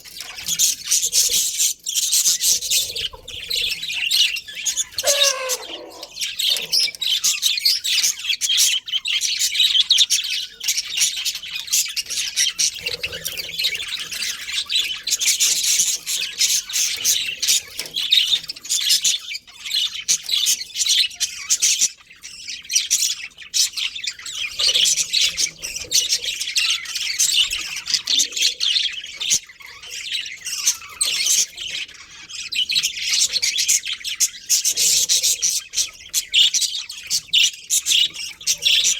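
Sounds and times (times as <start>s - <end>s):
budgerigars chattering: 0.0s - 38.9s
budgerigar squawks: 4.2s - 7.1s.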